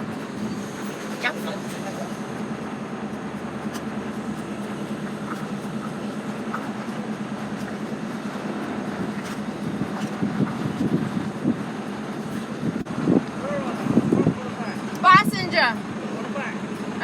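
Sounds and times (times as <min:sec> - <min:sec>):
diesel lorry engine running: 0:00.0 - 0:17.0.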